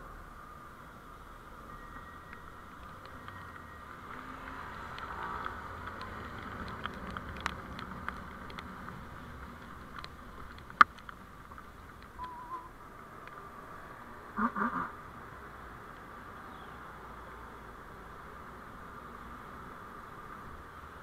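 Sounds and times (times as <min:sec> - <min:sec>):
vehicle road noise: 0:00.0 - 0:21.0
light clicks and rattles: 0:04.9 - 0:12.2.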